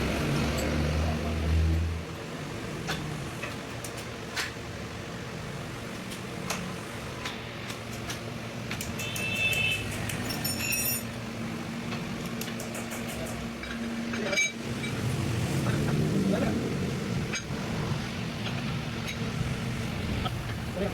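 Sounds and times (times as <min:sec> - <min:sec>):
metal tools clinking and tapping: 0:07.9 - 0:11.2, 0:11.9 - 0:15.0
ringing metallic clink: 0:09.0 - 0:11.1.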